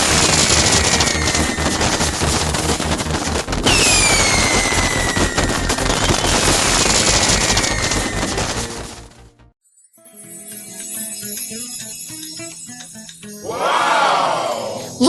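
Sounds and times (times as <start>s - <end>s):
falling firework whistles: 0.0s - 9.1s
fireworks crackling: 0.0s - 9.5s.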